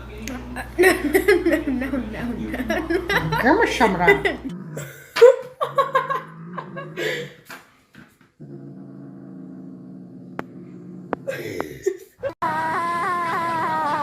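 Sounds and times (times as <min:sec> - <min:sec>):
dog growling: 0:04.5 - 0:04.9, 0:05.8 - 0:07.4, 0:08.4 - 0:11.6.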